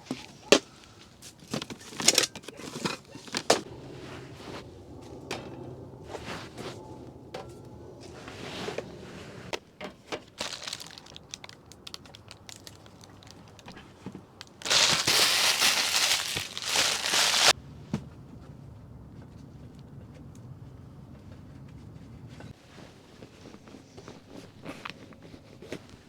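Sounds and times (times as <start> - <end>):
material crinkling and rustling: 0.4 - 9.4, 10.0 - 17.6.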